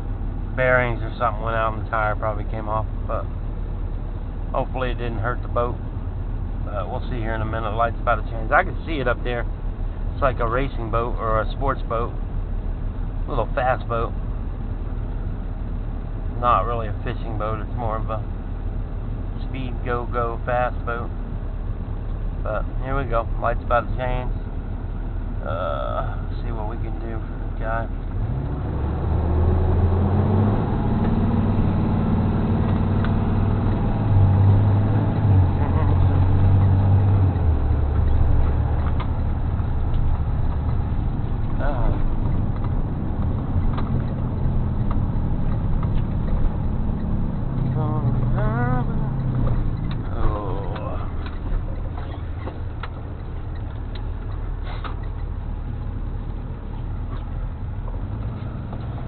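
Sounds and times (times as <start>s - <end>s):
truck engine accelerating: 0.0s - 59.0s
light clicks and rattles: 49.2s - 59.0s.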